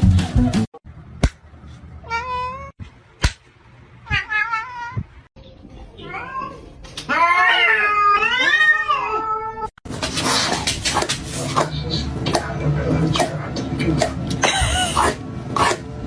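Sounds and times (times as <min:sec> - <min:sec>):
cat meowing: 0:06.0 - 0:09.7.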